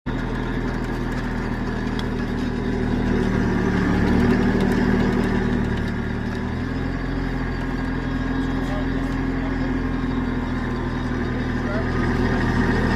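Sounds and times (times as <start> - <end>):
heavy machine engine running: 0.1 - 12.9.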